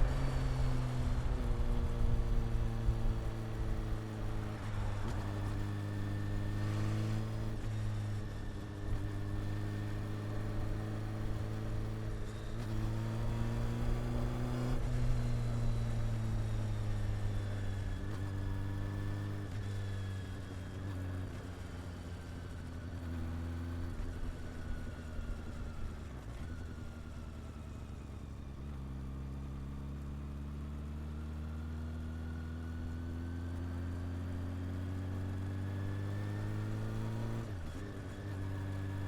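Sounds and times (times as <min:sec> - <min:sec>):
motorcycle engine running: 0:00.0 - 0:14.4
road and wind noise: 0:00.0 - 0:39.0.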